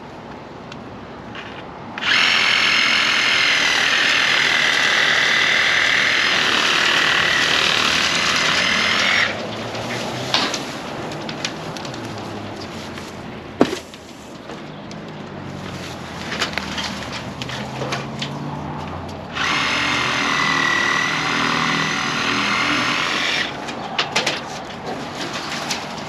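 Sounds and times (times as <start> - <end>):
power tool motor whining: 2.0 - 9.4, 19.3 - 23.6.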